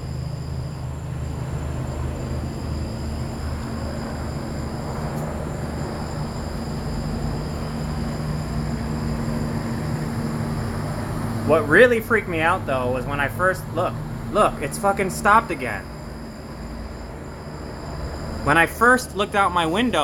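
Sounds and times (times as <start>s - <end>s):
helicopter hovering: 0.0s - 20.0s.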